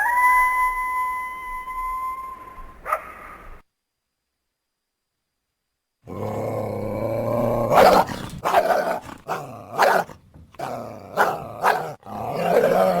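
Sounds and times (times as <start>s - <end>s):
coyote barking: 6.1s - 13.0s
coyote growling call: 6.1s - 13.0s.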